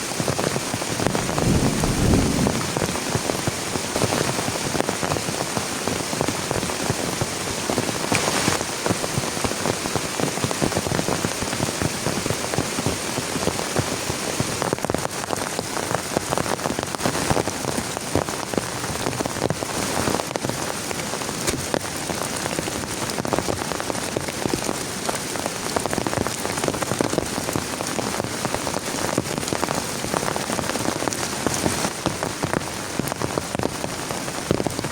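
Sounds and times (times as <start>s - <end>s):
heavy rain falling: 0.0s - 34.9s
low rumble: 1.0s - 3.7s.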